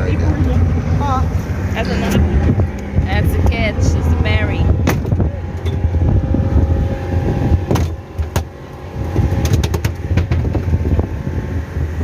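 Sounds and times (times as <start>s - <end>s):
boat motor droning: 0.0s - 12.0s.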